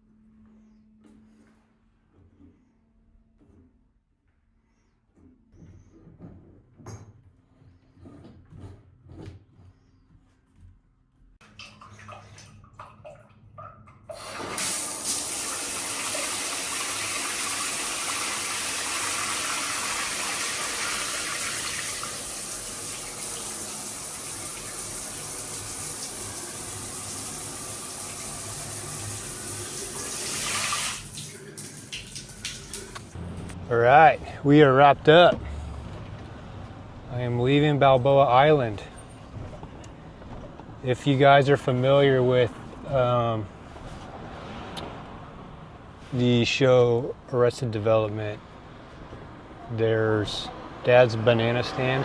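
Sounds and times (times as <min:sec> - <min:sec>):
shower water running: 0:14.1 - 0:33.2.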